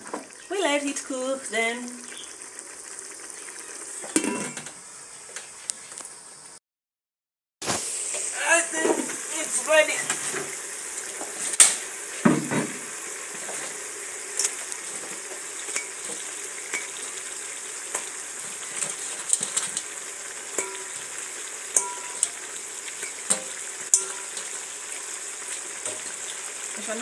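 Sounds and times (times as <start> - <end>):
chicken sizzling in a pot: 0.0 - 6.6, 7.6 - 27.0
utensil stirring and clicking on pot: 14.4 - 17.2, 20.5 - 24.8.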